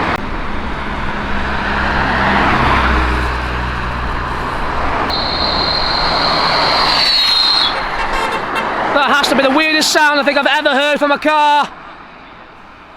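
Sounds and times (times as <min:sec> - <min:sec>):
car engine driving past: 0:00.0 - 0:09.0
road noise: 0:00.0 - 0:12.9
high steady whistling tone: 0:02.8 - 0:08.7.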